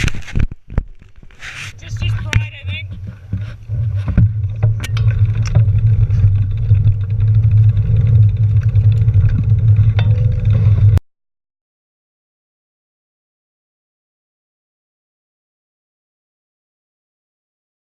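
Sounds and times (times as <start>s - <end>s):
knocks and clicks: 0.0s - 11.0s
low vehicle rumble: 1.8s - 11.0s.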